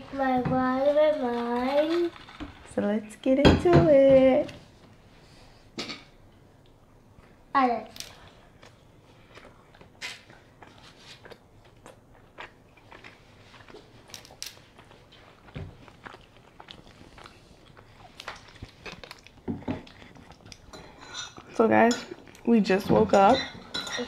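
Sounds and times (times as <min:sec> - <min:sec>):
chewing and mouth smacks: 0:08.1 - 0:21.6.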